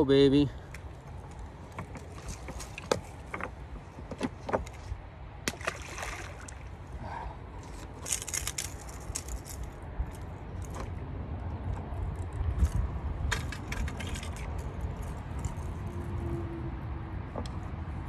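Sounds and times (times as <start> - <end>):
wind rumble on microphone: 6.7 - 18.0
fishing tackle clicking and rattling: 7.7 - 11.0, 11.7 - 15.9.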